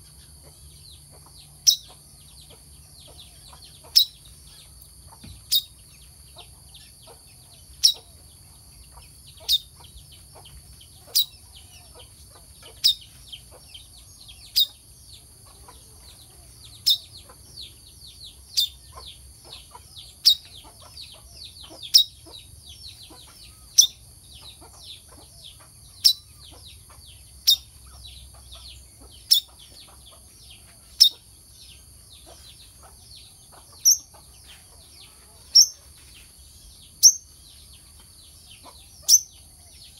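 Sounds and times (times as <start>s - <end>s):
bird twittering: 1.0s - 8.2s, 8.9s - 14.8s, 16.7s - 17.4s, 18.4s - 22.4s, 23.0s - 26.6s, 27.4s - 28.0s, 29.0s - 30.0s, 32.2s - 34.6s, 36.9s - 37.3s, 38.6s - 39.6s
bird sharp high chirp: 1.6s - 2.0s, 5.4s - 5.8s, 7.8s - 8.2s, 14.4s - 14.8s, 16.8s - 17.3s, 23.1s - 24.0s, 29.2s - 29.6s, 37.0s - 37.3s, 38.6s - 39.5s.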